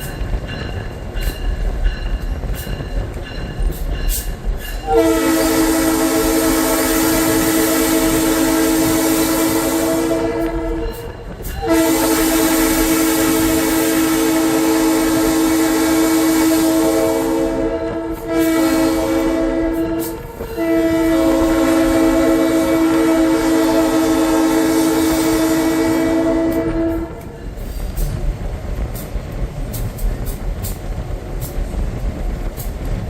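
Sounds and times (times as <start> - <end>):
engine and rail rumble: 0.0 - 33.0
locomotive air horn chord: 4.8 - 27.4.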